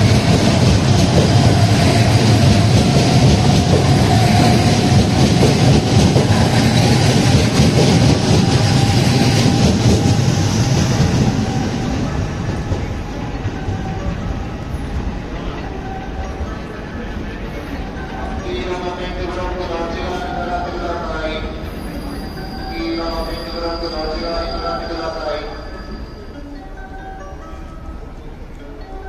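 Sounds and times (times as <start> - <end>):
train wheels clattering over rails: 0.0 - 15.6
train rumble and hum: 0.0 - 29.0.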